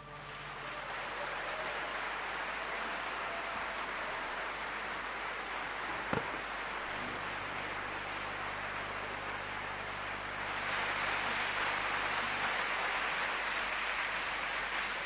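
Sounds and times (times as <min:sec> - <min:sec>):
audience applauding: 0:00.0 - 0:15.0
short knock: 0:05.9 - 0:06.4.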